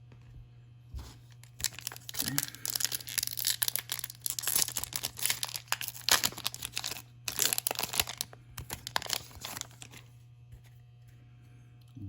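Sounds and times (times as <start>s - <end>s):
plastic wrapper tearing and crinkling: 1.3s - 10.1s.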